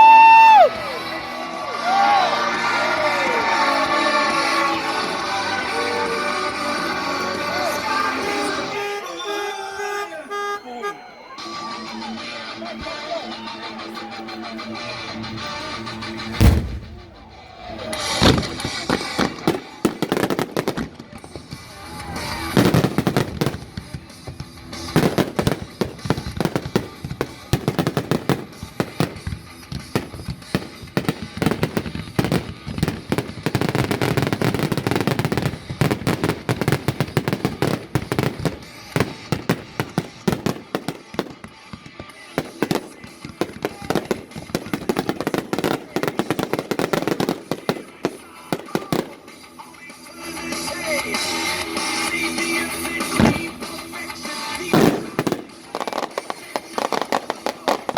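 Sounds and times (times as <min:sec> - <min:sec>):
fireworks banging and crackling: 0:00.0 - 0:09.0, 0:11.4 - 0:57.9.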